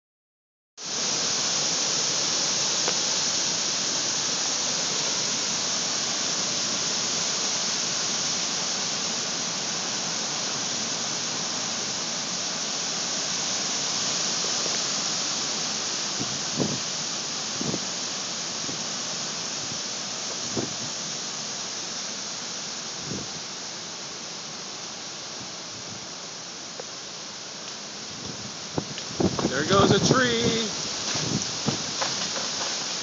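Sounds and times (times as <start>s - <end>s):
heavy rain hissing: 0.8s - 33.0s.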